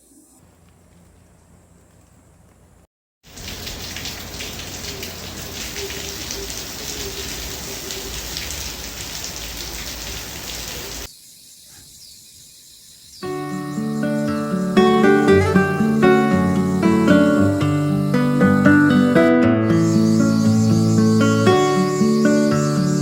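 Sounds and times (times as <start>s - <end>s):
heavy rain pattering: 0.4s - 11.1s.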